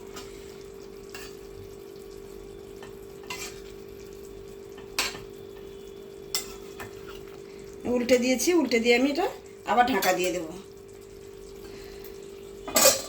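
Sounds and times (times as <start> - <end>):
spatula scraping a pan: 1.1 - 1.4, 3.2 - 3.7, 4.8 - 7.3.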